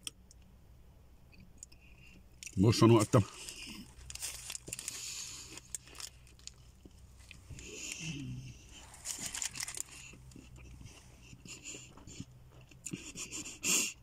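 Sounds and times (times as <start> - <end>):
paper wrapper crinkling: 3.0 - 8.0, 8.7 - 10.4
person chewing: 3.2 - 13.6.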